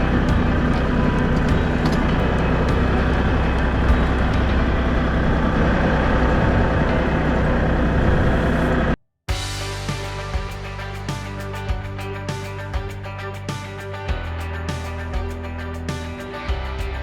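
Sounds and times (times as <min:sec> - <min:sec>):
diesel tractor engine running: 0:00.0 - 0:09.0.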